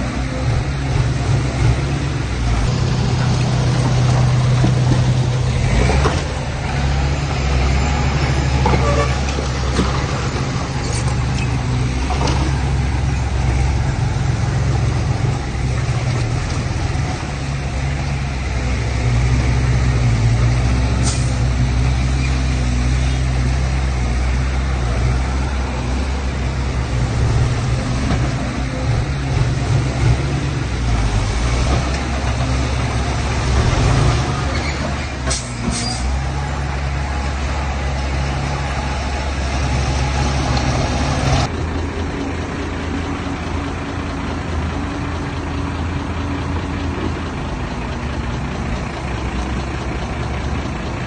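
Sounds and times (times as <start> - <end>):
diesel engine running: 0.0 - 51.0.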